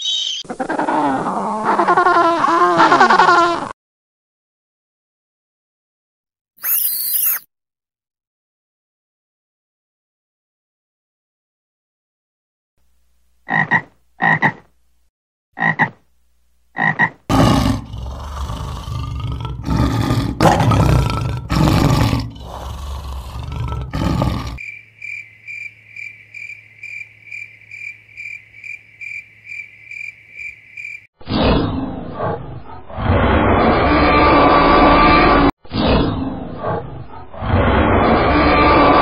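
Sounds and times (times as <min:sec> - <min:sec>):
short high chirps: 0:06.6 - 0:07.5
dinosaur roar sound effect: 0:17.3 - 0:24.6, 0:31.3 - 0:39.0
lion roaring: 0:17.3 - 0:24.6.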